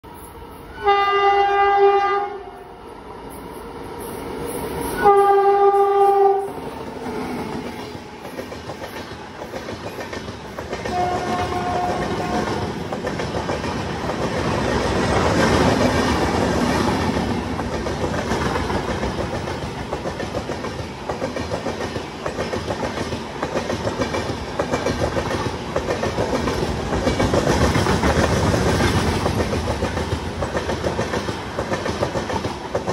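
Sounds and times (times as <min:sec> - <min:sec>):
locomotive horn blast: 0:00.7 - 0:02.6, 0:05.0 - 0:06.6, 0:10.9 - 0:12.6
train wheels clattering on rail joints: 0:05.2 - 0:32.9.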